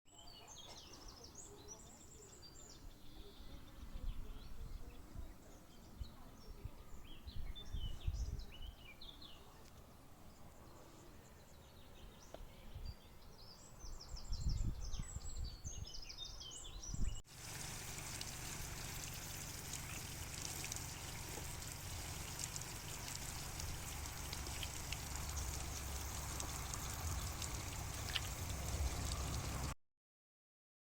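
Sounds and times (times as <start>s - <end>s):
songbirds chirping and twittering: 0.1s - 29.8s
steady hiss: 17.3s - 29.7s
low rumbles: 17.4s - 29.8s.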